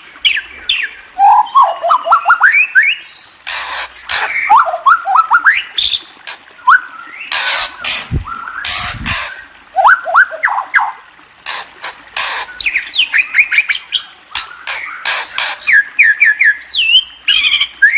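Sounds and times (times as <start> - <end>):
harsh bird squawks: 7.3 - 9.4, 14.4 - 17.9.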